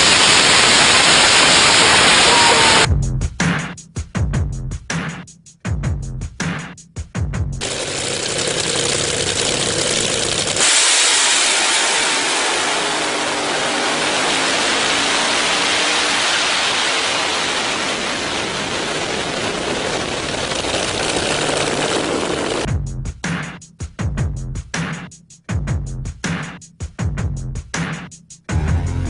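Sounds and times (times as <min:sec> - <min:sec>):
car engine running hard: 0:00.0 - 0:02.9, 0:07.6 - 0:22.7
rushing noise: 0:00.0 - 0:02.9, 0:10.2 - 0:22.7.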